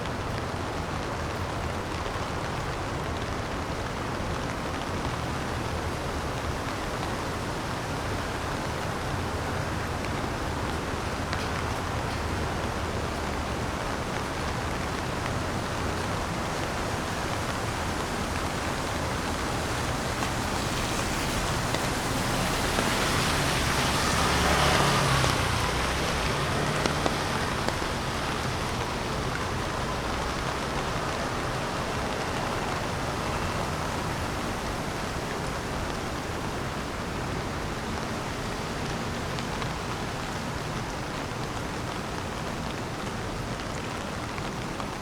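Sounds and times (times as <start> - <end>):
rain falling on street: 0.0 - 45.0
vehicle passing: 6.9 - 36.4.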